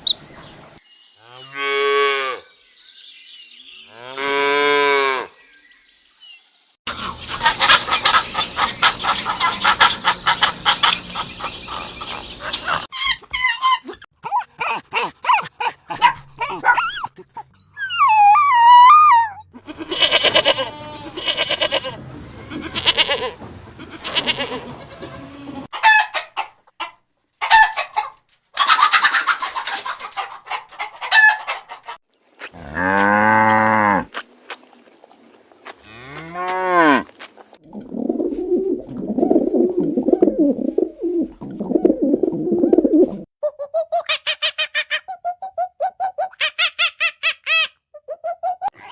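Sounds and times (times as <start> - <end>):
animal and bird calls: 0.0 - 4.2, 5.3 - 14.0, 16.4 - 25.7
hens clucking: 6.9 - 13.9, 19.6 - 32.0.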